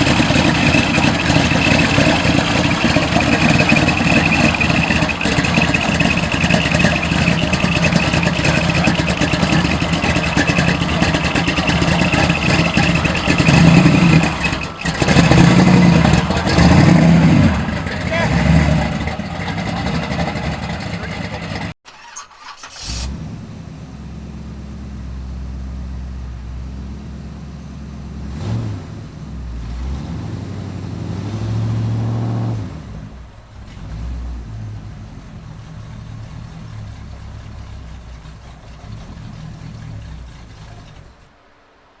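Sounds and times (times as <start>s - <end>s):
supercharged car engine revving: 0.0s - 21.8s, 22.7s - 41.3s.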